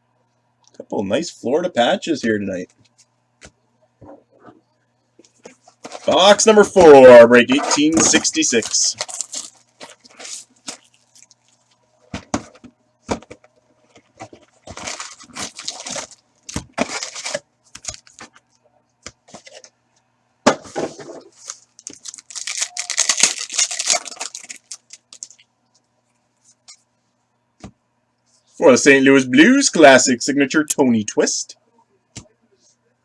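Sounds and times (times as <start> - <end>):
packaging tearing and crinkling: 7.6 - 11.8, 14.0 - 18.3, 21.3 - 25.4.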